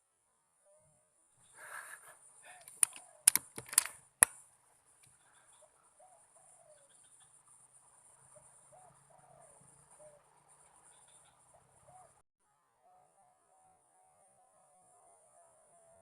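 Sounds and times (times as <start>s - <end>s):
sharp clicks: 2.6s - 4.4s
dove cooing: 5.2s - 7.0s, 8.3s - 10.3s, 10.9s - 12.2s.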